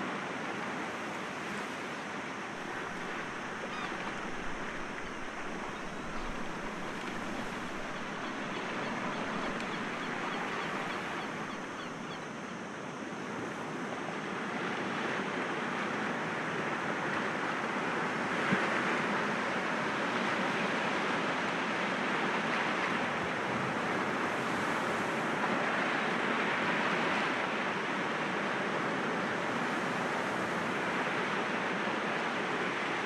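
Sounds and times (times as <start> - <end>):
sea waves washing against rocks: 2.6 - 11.2.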